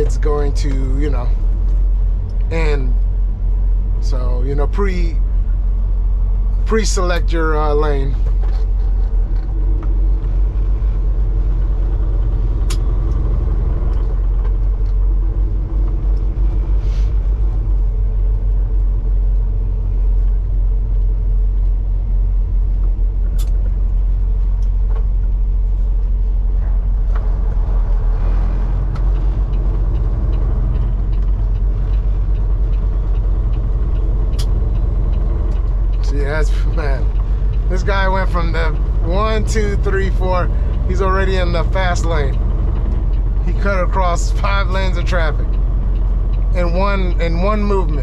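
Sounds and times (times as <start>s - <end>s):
truck engine drone in cab: 0.0s - 48.0s
sharp clicks: 28.9s - 48.0s.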